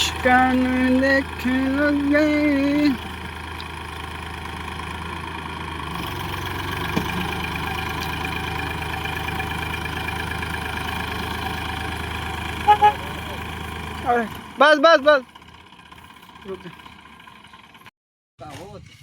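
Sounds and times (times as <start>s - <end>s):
tractor diesel engine running: 0.0s - 17.9s.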